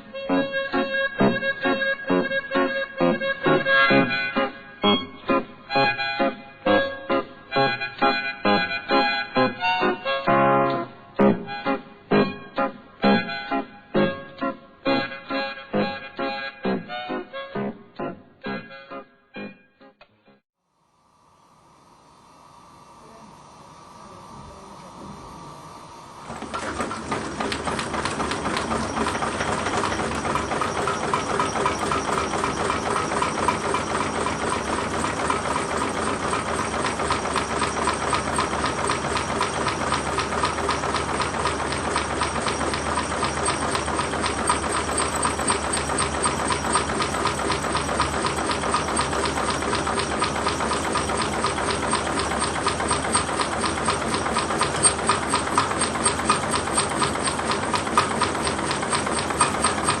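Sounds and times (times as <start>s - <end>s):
stirling engine mechanical clatter: 26.2s - 60.0s.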